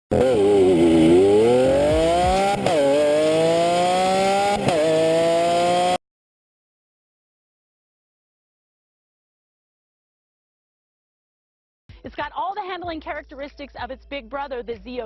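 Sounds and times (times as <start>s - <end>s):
car engine accelerating hard: 0.1s - 6.0s.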